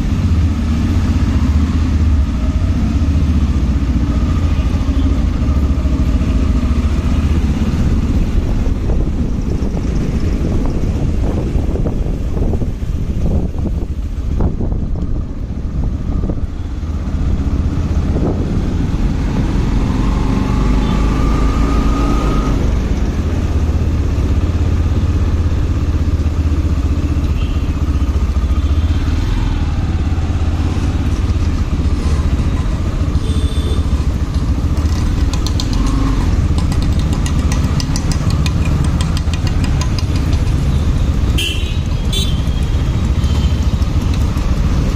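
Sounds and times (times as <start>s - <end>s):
motorcycle engine and road rumble: 0.0s - 44.9s
wind noise on microphone: 7.3s - 25.1s.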